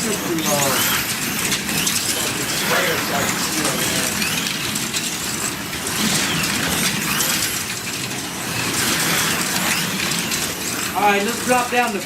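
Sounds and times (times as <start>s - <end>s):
slot car motors whining: 0.0s - 12.0s.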